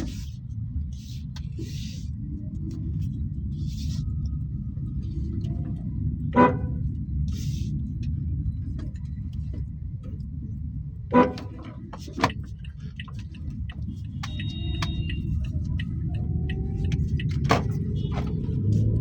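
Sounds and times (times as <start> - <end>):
car road and engine rumble: 0.0 - 19.0
car horn toots: 6.3 - 6.8, 11.1 - 11.7, 14.1 - 15.4, 17.7 - 18.7.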